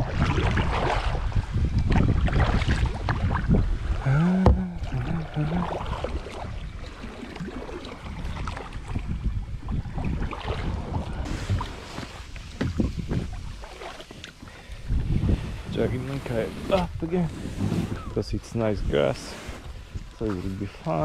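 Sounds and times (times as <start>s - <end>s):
kayak paddle splashing in water: 0.0s - 1.3s, 1.9s - 14.9s
wind on microphone: 0.0s - 21.0s.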